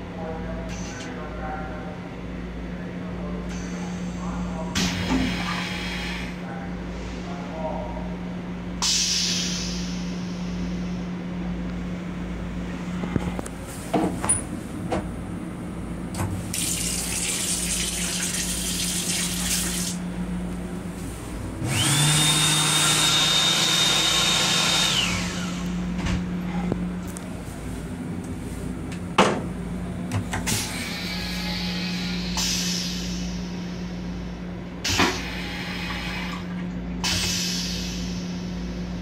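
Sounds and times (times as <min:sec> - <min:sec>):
railcar low hum: 0:00.0 - 0:04.8, 0:05.7 - 0:16.6, 0:20.0 - 0:21.8, 0:24.9 - 0:39.0
water running from tap: 0:16.5 - 0:20.0.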